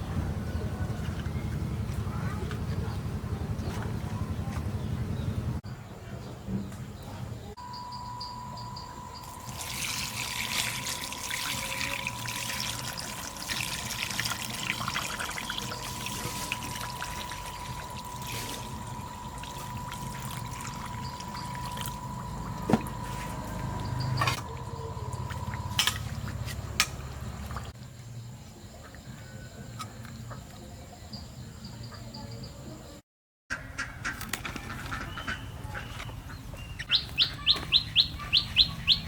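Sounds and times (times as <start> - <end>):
faint steady high tone: 7.6 - 26.3
water pouring and trickling: 9.2 - 26.6.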